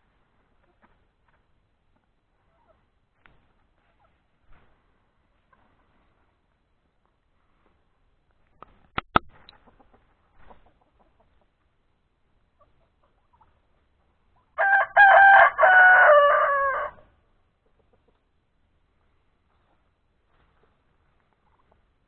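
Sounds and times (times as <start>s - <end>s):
rooster crowing: 14.6s - 17.1s.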